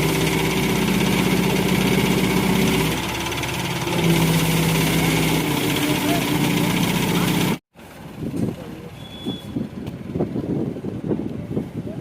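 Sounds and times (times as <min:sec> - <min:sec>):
vehicle engine running: 0:00.0 - 0:09.0.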